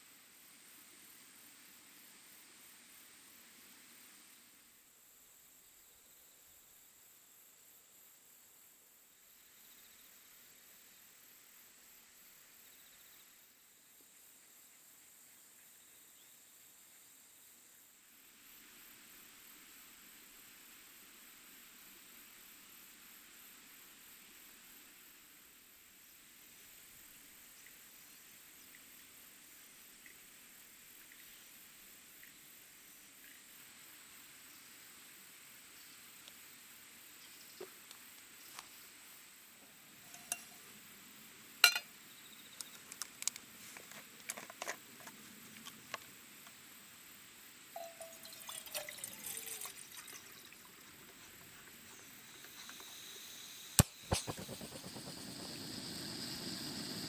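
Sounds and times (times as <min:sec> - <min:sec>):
insects chirring: 0:35.8 - 0:57.0
small ticks and clinks: 0:40.1 - 0:40.7, 0:41.6 - 0:42.0
water trickling: 0:47.8 - 0:51.9.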